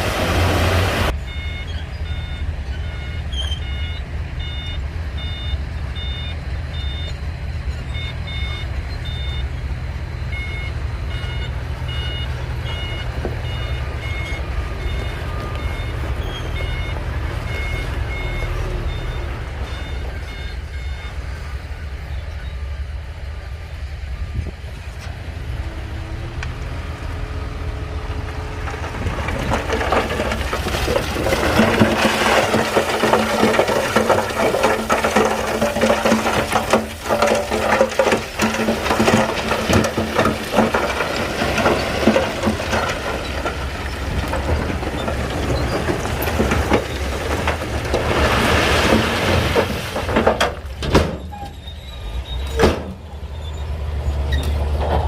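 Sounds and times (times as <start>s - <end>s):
bulldozer diesel engine: 0.0s - 55.0s
steel tracks clanking: 28.7s - 55.0s.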